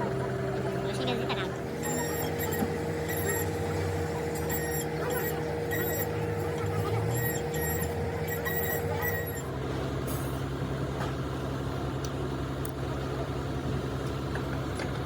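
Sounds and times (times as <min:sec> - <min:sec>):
machine running: 0:00.9 - 0:09.5.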